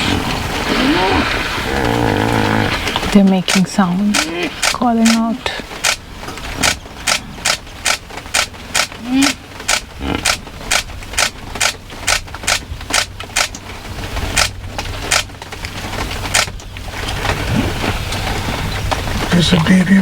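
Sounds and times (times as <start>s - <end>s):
hippo deep grunts: 0.0s - 3.2s, 8.9s - 10.7s
hippos wheezy honks: 0.0s - 3.2s.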